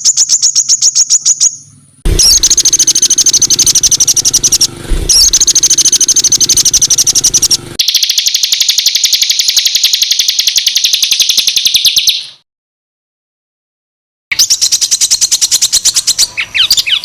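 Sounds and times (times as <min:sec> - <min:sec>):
songbird harsh rapid song: 0:00.0 - 0:12.4, 0:14.3 - 0:17.0.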